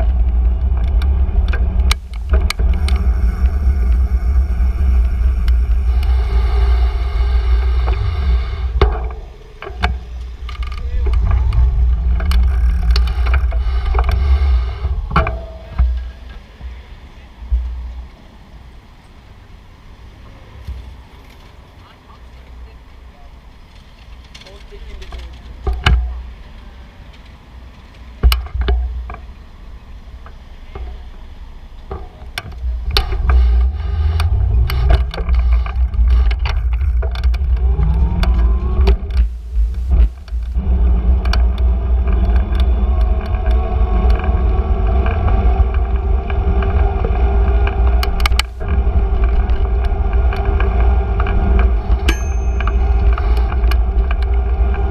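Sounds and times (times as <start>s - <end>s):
bicycle clicks and rattles: 0.0s - 6.7s, 8.8s - 14.4s, 23.6s - 29.2s, 31.9s - 39.3s, 39.9s - 54.9s
wind and road rumble: 0.0s - 54.9s
short rising hum: 1.1s - 10.2s.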